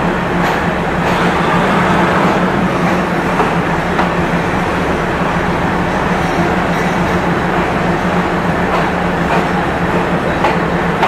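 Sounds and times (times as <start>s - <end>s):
train carriages running: 0.0s - 11.0s
train engine hum: 0.0s - 11.0s.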